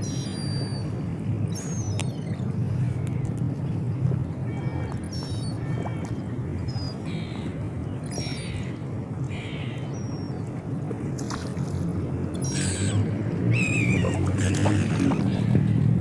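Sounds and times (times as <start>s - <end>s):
seagulls calling: 0.0s - 2.6s, 4.4s - 10.4s, 12.3s - 15.9s.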